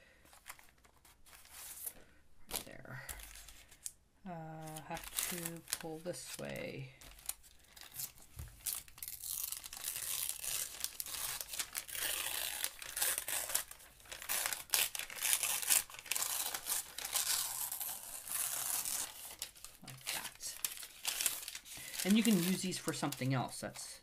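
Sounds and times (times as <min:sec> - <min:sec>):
paper tearing: 0:04.6 - 0:23.4.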